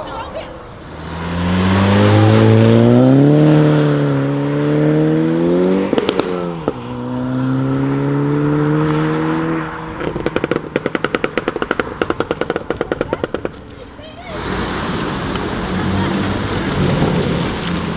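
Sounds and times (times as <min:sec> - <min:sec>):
car engine revving: 0:00.6 - 0:12.8, 0:14.3 - 0:17.9
exhaust pops and cracks: 0:05.9 - 0:06.8, 0:10.0 - 0:17.9.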